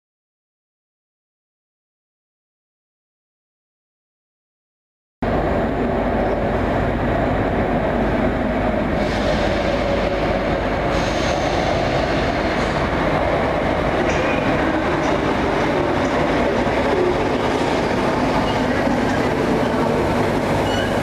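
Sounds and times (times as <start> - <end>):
train wheels rumbling on rail: 5.2 - 21.0
faint high wheel squeal: 20.6 - 21.0.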